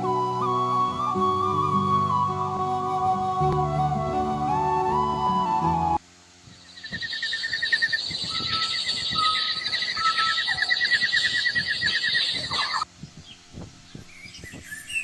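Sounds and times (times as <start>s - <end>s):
flute music: 0.0s - 6.0s, 8.2s - 11.1s
animal trilling call: 6.7s - 12.8s
high whistles: 6.8s - 12.8s, 14.1s - 15.0s.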